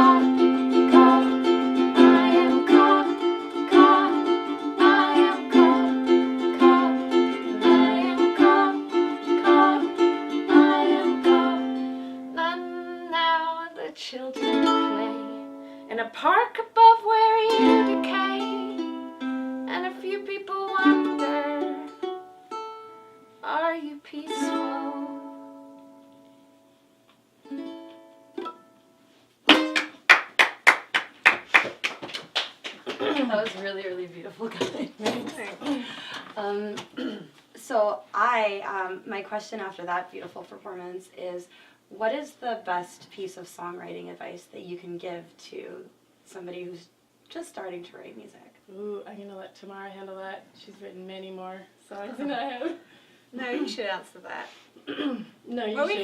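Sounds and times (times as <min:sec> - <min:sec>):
electric ukuleles playing: 0:00.0 - 0:13.6, 0:14.4 - 0:15.8, 0:17.3 - 0:23.3, 0:24.3 - 0:26.7, 0:27.4 - 0:30.2
hand clapping: 0:29.5 - 0:33.7.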